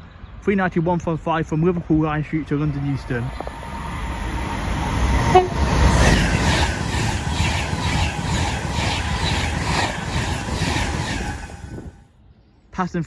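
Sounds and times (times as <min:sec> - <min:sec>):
train wheels rushing on rail: 0:01.8 - 0:12.0
train horn toot: 0:05.0 - 0:06.2.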